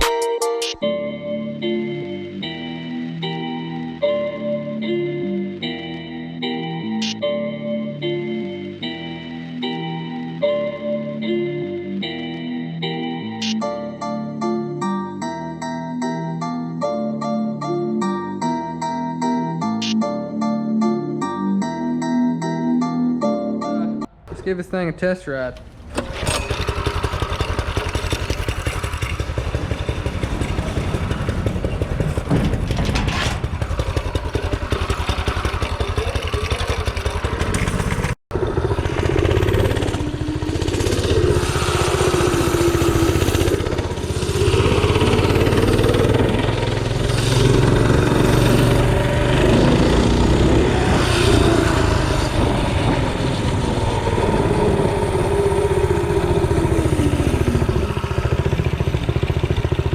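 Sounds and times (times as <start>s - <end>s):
small engine revving: 25.9s - 59.9s.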